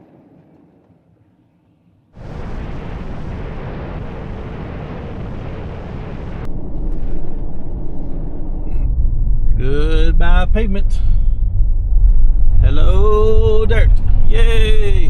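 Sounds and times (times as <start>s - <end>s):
wind and road noise: 2.1s - 15.0s
truck driving: 6.2s - 15.0s.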